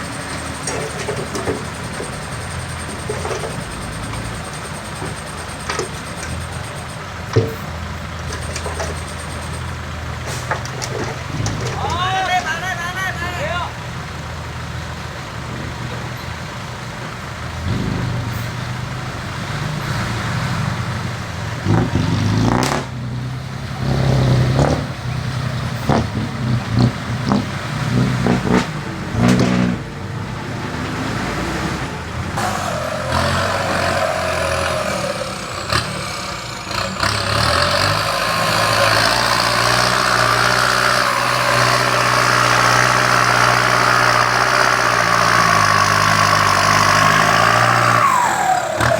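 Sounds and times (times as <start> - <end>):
sharp knocks and clanks: 0.0 - 12.5, 25.8 - 29.9
diesel engines running: 0.0 - 48.9.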